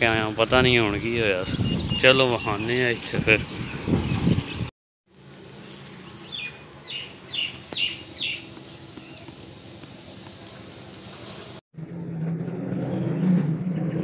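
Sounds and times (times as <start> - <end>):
bird chirping: 5.6 - 9.4.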